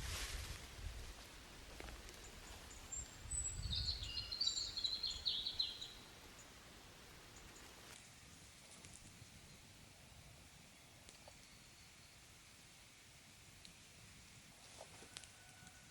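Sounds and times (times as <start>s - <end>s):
songbird chirps and trills: 1.7s - 13.0s.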